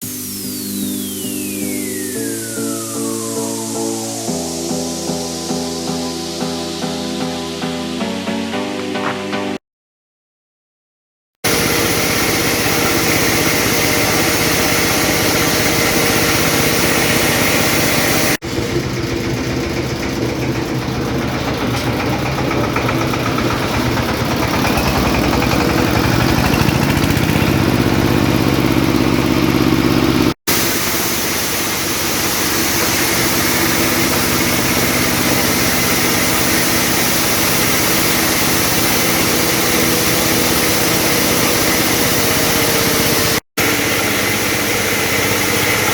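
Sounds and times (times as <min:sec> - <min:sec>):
milling machine droning: 0:11.5 - 0:45.9.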